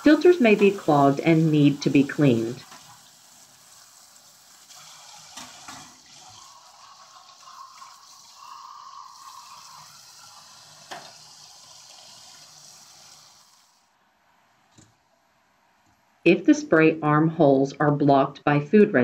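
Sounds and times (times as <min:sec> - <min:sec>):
tap water running and splashing: 0:00.0 - 0:13.9.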